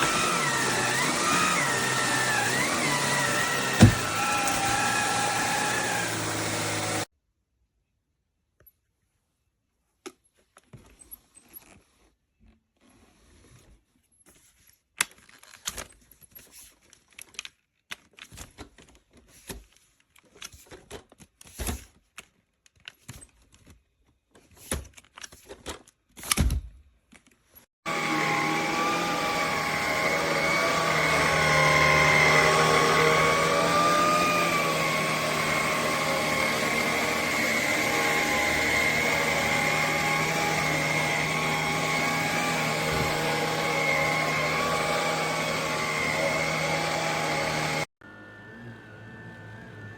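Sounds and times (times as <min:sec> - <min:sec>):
cordless vacuum motor whine: 0:00.0 - 0:07.1, 0:27.9 - 0:49.9.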